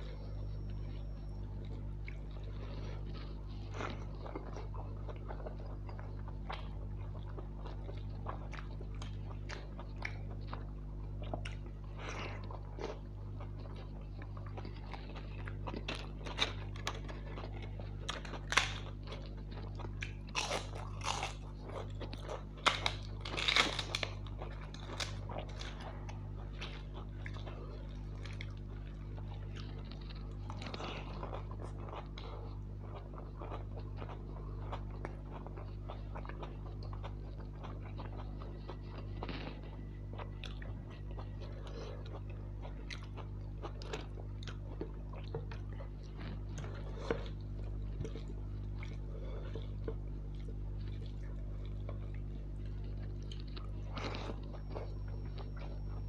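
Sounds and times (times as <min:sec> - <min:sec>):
man chewing food: 0:00.0 - 0:56.0
steady low hum: 0:00.0 - 0:56.0
crisp crunching bites: 0:11.3 - 0:32.2.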